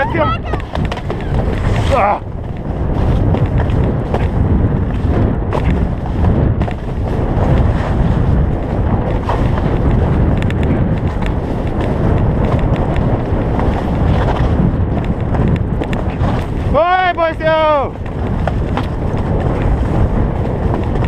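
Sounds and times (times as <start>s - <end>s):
wind rushing over microphone: 0.0s - 21.0s
skis hissing and scraping on snow: 1.3s - 2.2s, 7.6s - 8.3s.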